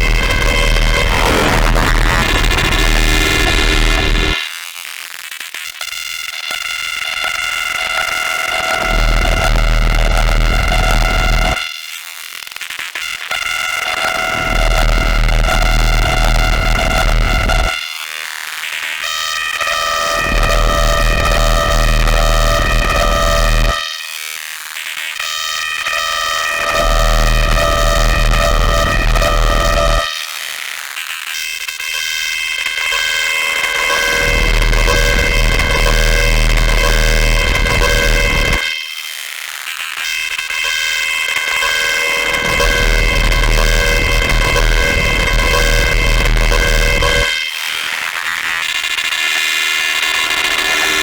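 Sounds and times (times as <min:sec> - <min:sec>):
distorted synthesizer chords: 0:00.0 - 0:04.5.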